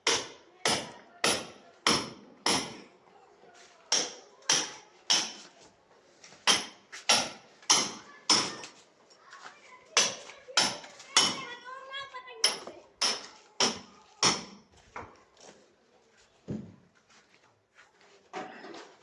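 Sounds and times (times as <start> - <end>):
hand rammer pounding brick floor: 0.0 - 3.0, 3.9 - 5.5, 6.4 - 8.7, 9.9 - 11.7, 12.4 - 15.1.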